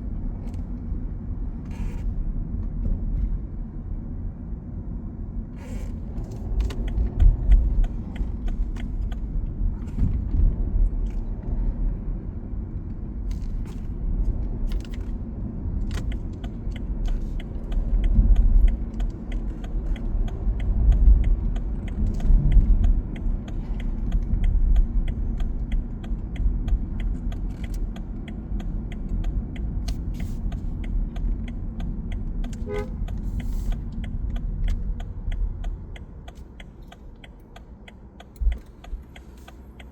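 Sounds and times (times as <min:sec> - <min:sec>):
low rumble of passing vehicles: 0:00.0 - 0:39.9
faint ticking: 0:30.2 - 0:39.9
car horn toot: 0:32.6 - 0:33.0.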